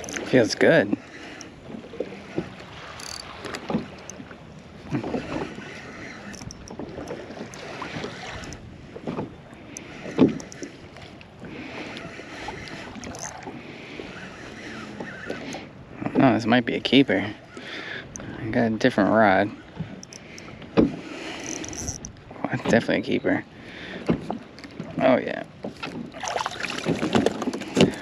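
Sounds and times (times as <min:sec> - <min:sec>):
water lapping against a hull: 0:00.0 - 0:28.0
knocks and splashes: 0:01.6 - 0:05.5, 0:25.6 - 0:28.0.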